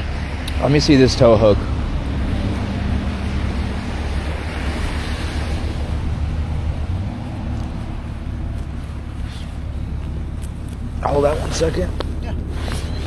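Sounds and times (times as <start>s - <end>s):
wind rushing: 0.0s - 10.2s
low engine hum: 0.0s - 13.0s
traffic on slushy pavement: 0.0s - 13.0s.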